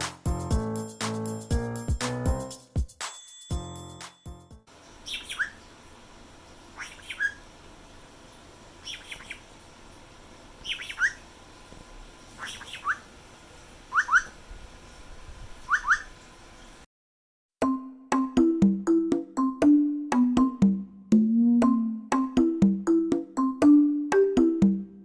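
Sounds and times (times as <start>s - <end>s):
parrot sharp chirps: 5.0s - 5.7s, 6.7s - 7.5s, 8.8s - 9.5s, 10.6s - 11.3s, 12.4s - 13.1s, 13.9s - 14.4s, 15.6s - 16.2s.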